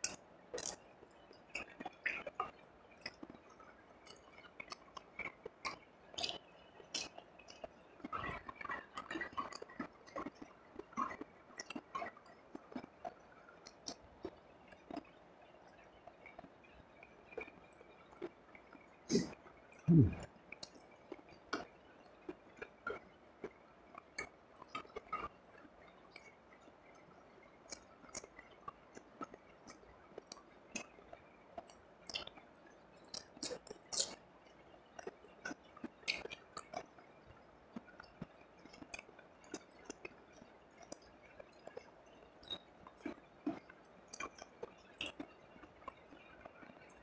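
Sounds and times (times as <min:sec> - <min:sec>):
close chewing with wet mouth smacks: 0:00.0 - 0:00.8, 0:01.5 - 0:15.1, 0:24.2 - 0:25.3, 0:27.7 - 0:31.0, 0:31.6 - 0:32.4, 0:33.0 - 0:34.2, 0:35.0 - 0:37.0, 0:37.7 - 0:46.9.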